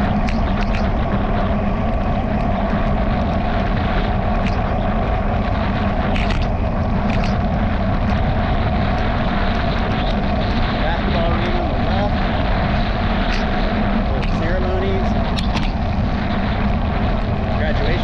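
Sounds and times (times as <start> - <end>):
bicycle tyres on road: 0.0 - 18.0
wind on microphone: 0.0 - 18.0
camera mount rattling: 6.1 - 6.5.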